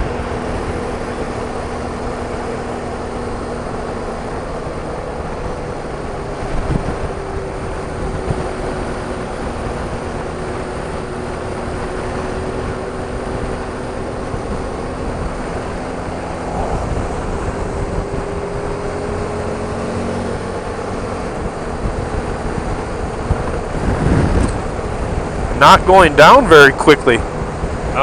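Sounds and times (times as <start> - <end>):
motorcycle engine running: 0.0 - 25.7
road noise: 0.0 - 28.0
wind rushing: 6.3 - 25.7.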